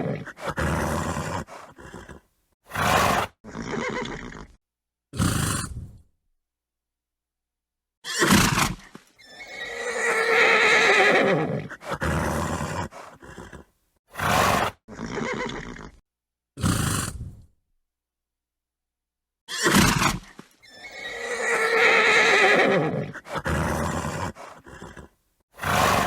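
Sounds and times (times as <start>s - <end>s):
horse snorting: 0.0s - 4.6s, 5.2s - 6.0s, 8.2s - 16.0s, 16.6s - 17.4s, 19.6s - 26.0s
horse whinnying: 0.0s - 4.6s, 8.0s - 16.0s, 19.5s - 26.0s.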